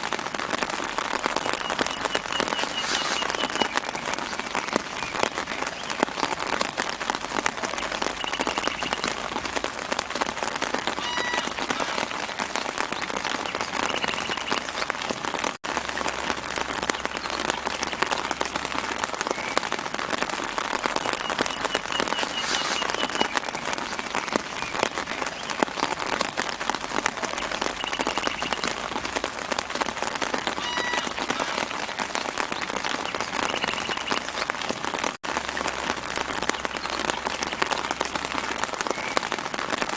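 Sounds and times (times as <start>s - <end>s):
rain pattering on leaves: 0.0s - 39.9s
trilling bird calls: 1.5s - 6.0s, 7.8s - 9.2s, 11.0s - 12.2s, 12.9s - 14.9s, 21.1s - 24.0s, 30.6s - 31.8s, 32.6s - 34.4s.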